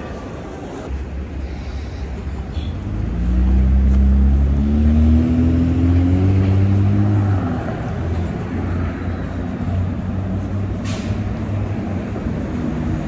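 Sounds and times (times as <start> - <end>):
vehicle engine accelerating: 2.9 - 10.5.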